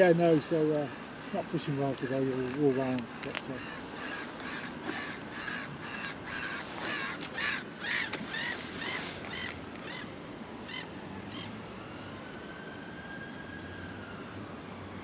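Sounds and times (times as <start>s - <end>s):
bird calling harshly: 2.4s - 10.1s.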